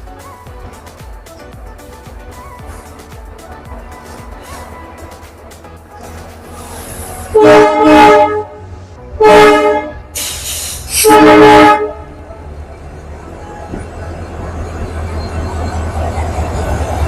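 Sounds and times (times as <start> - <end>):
train low rumble: 0.0 - 17.0
locomotive air horn blasts: 6.8 - 12.2.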